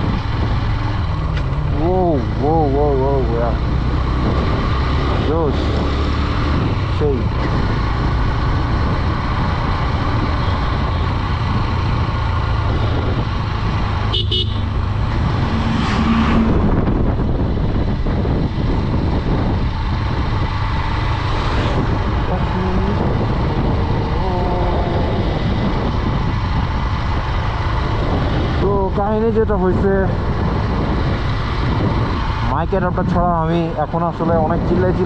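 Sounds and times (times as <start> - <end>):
motorcycle engine running: 0.0 - 35.0
wind rush on microphone: 0.0 - 35.0
horn toot: 14.1 - 14.8.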